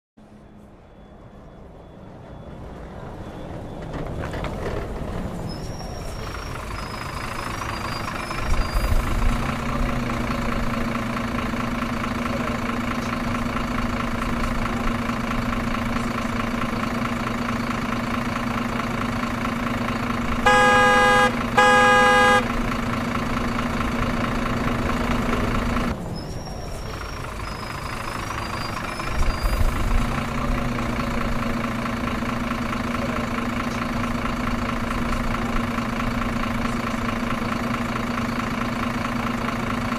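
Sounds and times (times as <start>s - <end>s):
truck engine starting and idling: 0.4s - 39.9s
horn honks: 20.4s - 22.6s.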